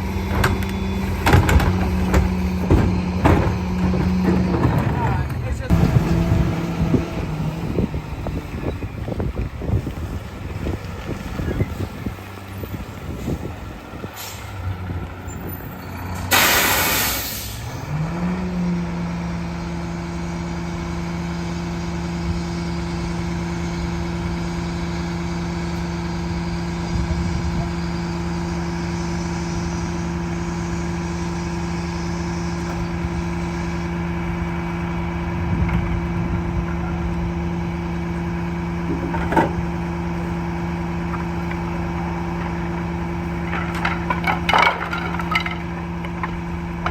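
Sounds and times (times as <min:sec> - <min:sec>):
diesel engine revving: 0:00.0 - 0:46.9
air brake hiss: 0:14.2 - 0:14.6, 0:16.3 - 0:17.8.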